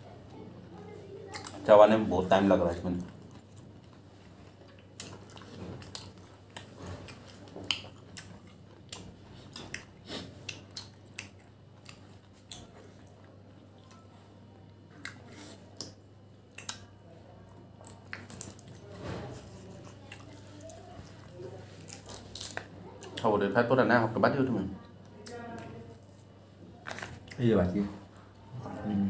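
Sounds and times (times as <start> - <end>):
person chewing meat: 2.9 - 14.0, 15.0 - 17.0, 17.8 - 23.2.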